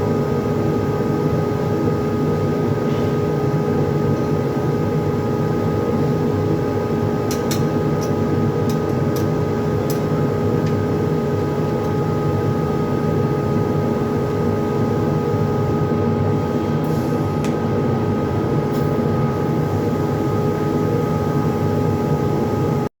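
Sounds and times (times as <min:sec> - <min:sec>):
welding machine hum and hiss: 0:00.0 - 0:22.9.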